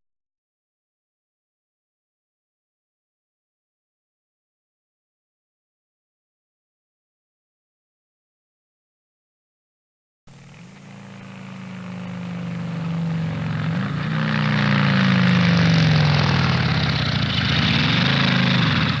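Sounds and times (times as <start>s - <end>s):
engine running: 10.3s - 19.0s.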